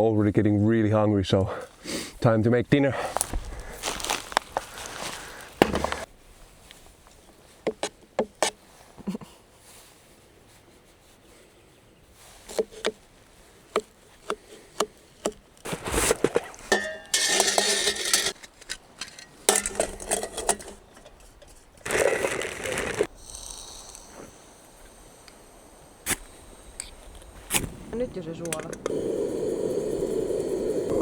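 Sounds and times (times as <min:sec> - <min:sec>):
cooking gear clicks and knocks: 0:03.9 - 0:06.1, 0:13.7 - 0:23.1.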